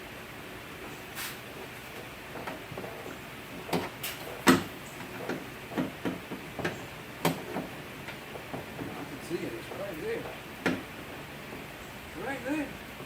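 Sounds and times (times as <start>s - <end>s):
tools knocking on metal parts: 2.3s - 11.6s.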